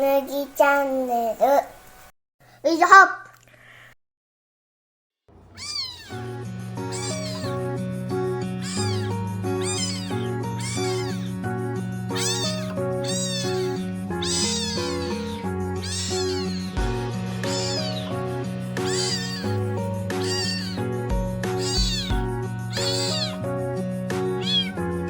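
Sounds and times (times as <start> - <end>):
kitten meowing: 5.4 - 23.4, 24.3 - 24.8
background music sustained notes: 6.1 - 25.0.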